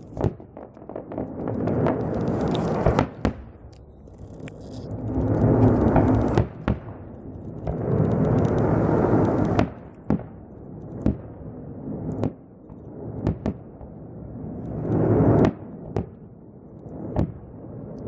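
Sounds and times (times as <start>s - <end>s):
rumbling noise: 0.0s - 9.9s
firework shells bursting: 0.0s - 11.2s.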